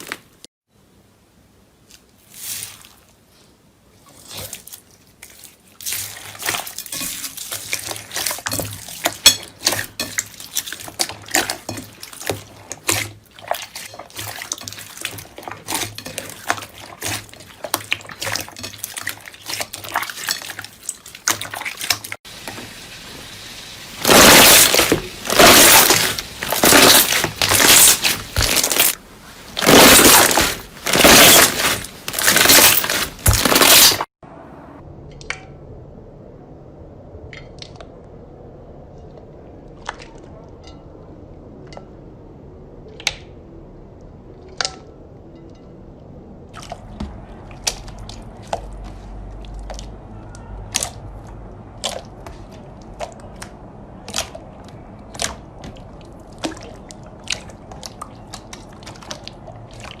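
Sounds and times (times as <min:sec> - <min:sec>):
slime crunching: 0:24.0 - 0:34.1, 0:50.7 - 1:00.0.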